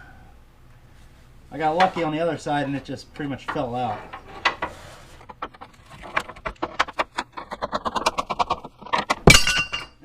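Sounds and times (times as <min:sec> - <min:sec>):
metal clicks and scrapes: 0:01.8 - 0:09.3.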